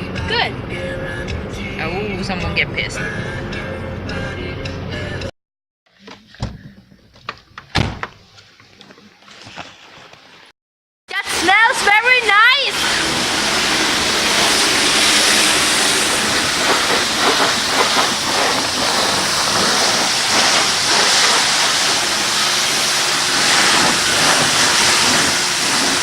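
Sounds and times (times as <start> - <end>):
water spray hissing on car: 12.7 - 26.0.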